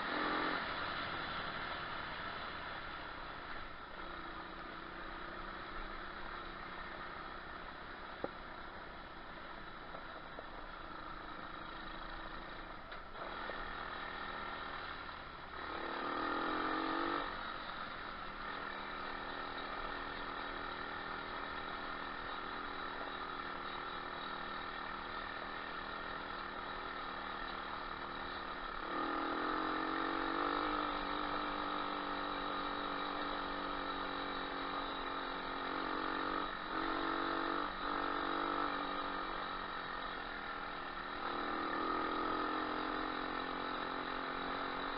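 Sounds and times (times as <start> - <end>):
motorbike engine revving: 0.0 - 8.8, 9.9 - 44.9.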